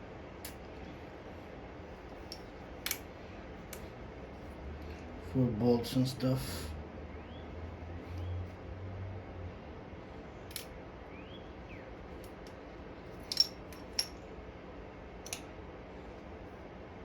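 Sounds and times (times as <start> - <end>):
metal parts clinking: 2.1 - 3.1, 13.1 - 14.2.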